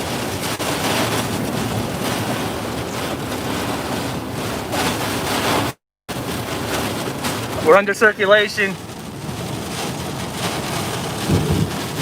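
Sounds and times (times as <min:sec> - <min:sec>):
storm winds gusting: 0:00.0 - 0:12.0
wind buffeting microphone: 0:09.0 - 0:12.0.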